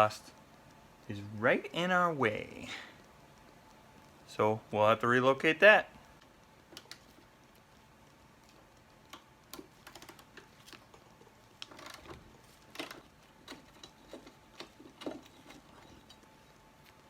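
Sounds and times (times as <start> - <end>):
metal tools clicking and tapping: 12.8 - 16.3.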